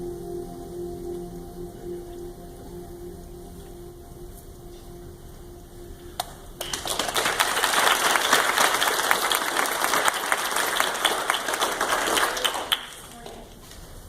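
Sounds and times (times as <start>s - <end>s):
audience applauding: 6.2s - 13.5s.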